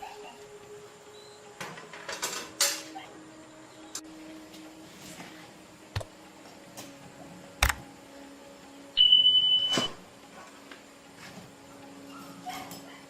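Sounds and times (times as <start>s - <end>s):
electronic beep: 9.0s - 10.0s.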